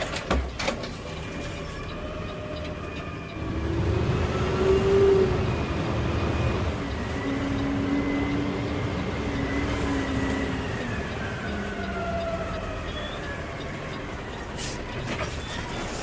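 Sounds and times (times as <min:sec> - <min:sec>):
whining tones falling in pitch: 0:01.6 - 0:14.6.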